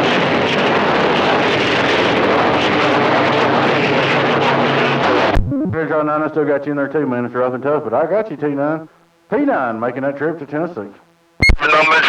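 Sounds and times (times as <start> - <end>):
radio static hiss: 5.0 - 12.0
faint hum tones: 5.2 - 11.9.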